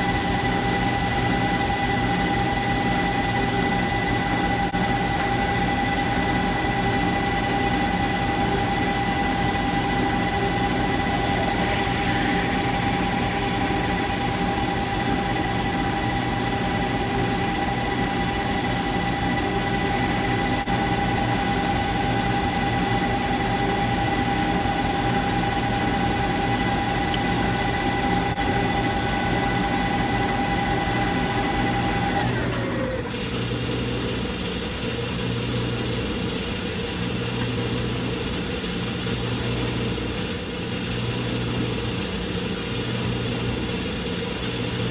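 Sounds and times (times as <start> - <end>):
high-pitched squeal: 0.0 - 2.6, 11.0 - 24.9
lathe whining: 0.0 - 44.9.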